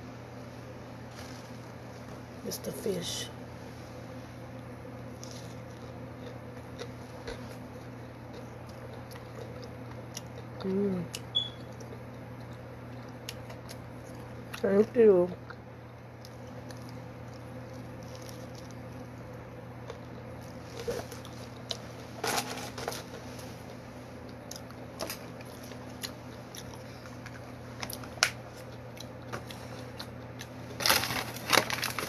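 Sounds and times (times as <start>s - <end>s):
steady low hum: 0.0s - 32.0s
person chewing: 5.0s - 14.6s, 15.4s - 22.2s, 22.9s - 31.0s.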